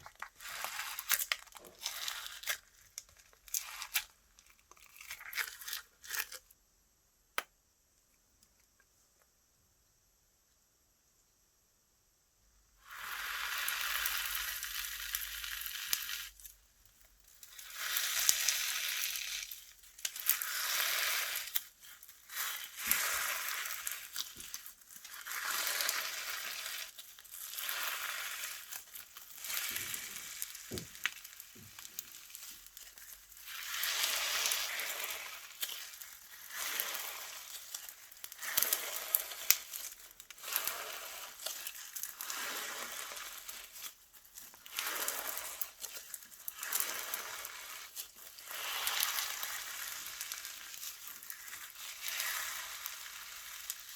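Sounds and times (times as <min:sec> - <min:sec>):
slime squeezed by hand crackling: 0:17.5 - 0:53.9.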